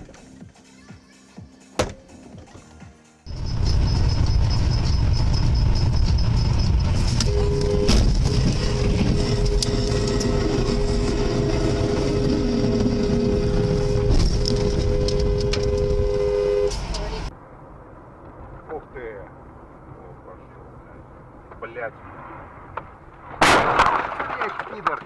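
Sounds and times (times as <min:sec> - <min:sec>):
car road and engine rumble: 0:01.8 - 0:23.4
two-tone car horn blast: 0:07.1 - 0:16.9.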